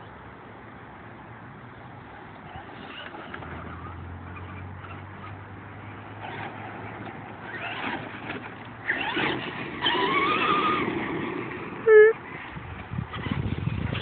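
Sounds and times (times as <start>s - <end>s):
tyres scrabbling on dirt: 2.4s - 14.0s
electric motor whining: 6.2s - 12.2s.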